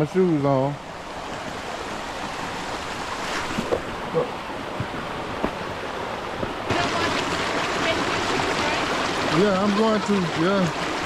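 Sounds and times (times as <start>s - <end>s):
waterfall rushing: 6.0s - 11.0s.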